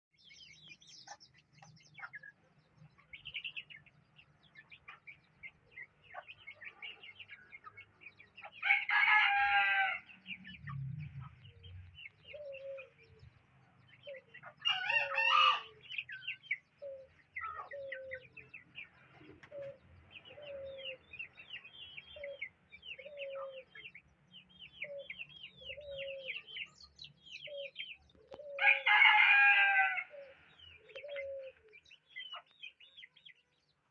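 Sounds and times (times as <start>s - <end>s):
small birds chirping: 0.1s - 33.9s
rooster crowing: 8.6s - 10.2s, 14.6s - 15.8s, 28.5s - 30.3s.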